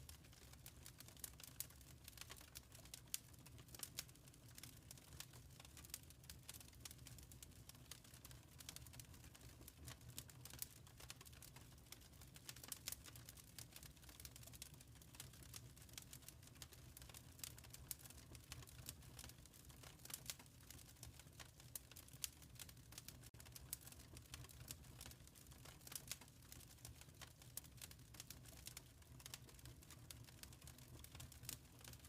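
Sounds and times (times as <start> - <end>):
wood fire crackling softly: 0.0 - 32.0.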